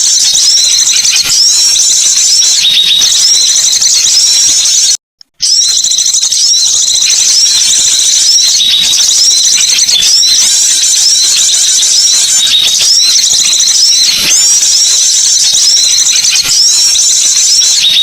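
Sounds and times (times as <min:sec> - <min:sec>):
small birds twittering: 0:00.0 - 0:18.0.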